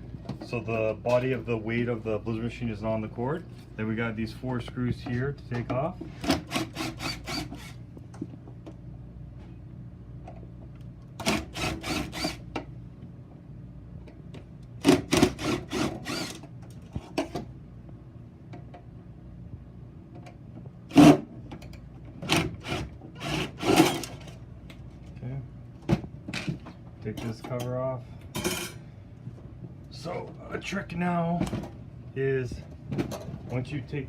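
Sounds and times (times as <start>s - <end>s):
screws clicking and scraping: 15.4s - 16.4s.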